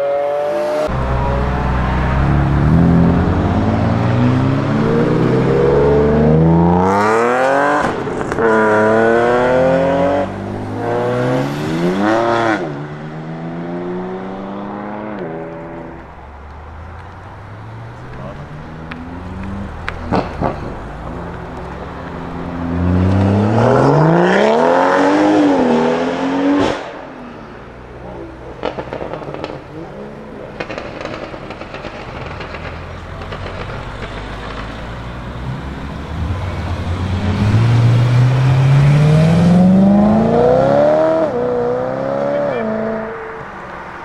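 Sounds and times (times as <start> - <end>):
car engine accelerating hard: 0.0 - 16.1, 16.9 - 27.2, 28.0 - 44.0
exhaust crack: 0.9 - 9.4, 15.1 - 23.5, 26.6 - 40.6.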